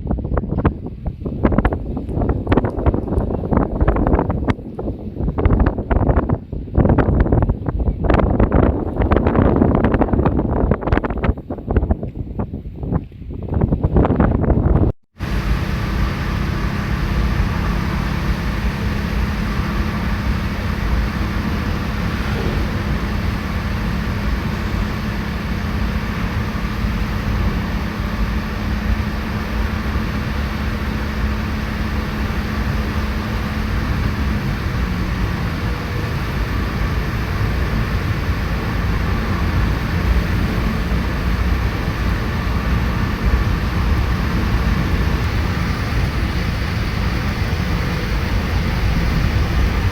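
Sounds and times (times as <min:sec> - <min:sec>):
car tyre and engine noise: 0:00.0 - 0:49.9
low hum: 0:14.6 - 0:49.9.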